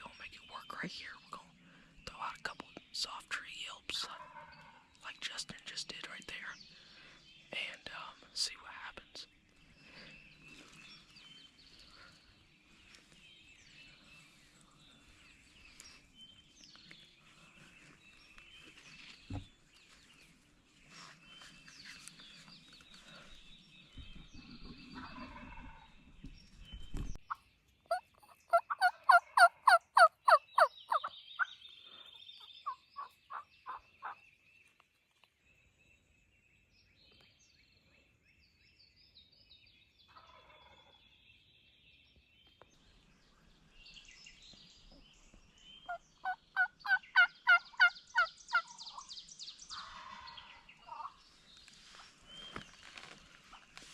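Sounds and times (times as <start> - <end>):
songbirds chirping: 0.0 - 53.9
turkey yelping: 27.9 - 31.1.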